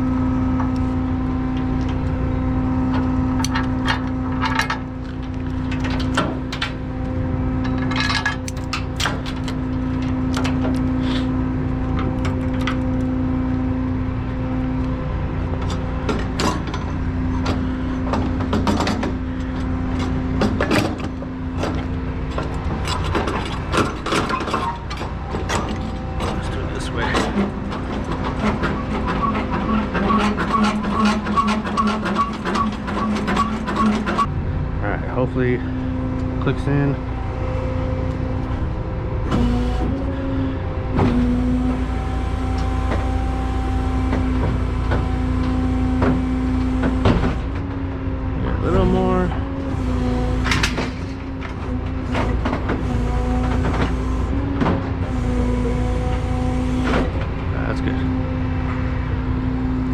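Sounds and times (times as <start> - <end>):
heavy truck running: 0.0 - 59.9
rattling metallic clicks: 2.9 - 6.8
sharp knocks and clanks: 15.6 - 19.2, 20.0 - 34.3.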